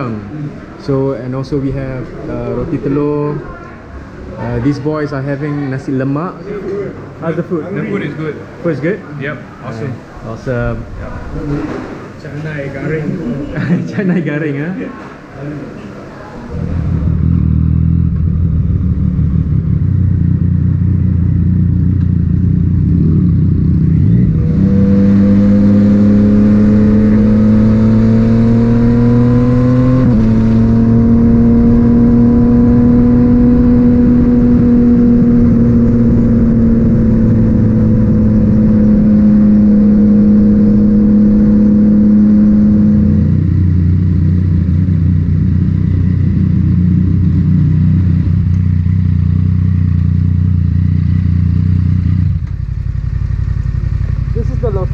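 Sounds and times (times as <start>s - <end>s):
motorcycle engine revving: 16.4s - 54.9s.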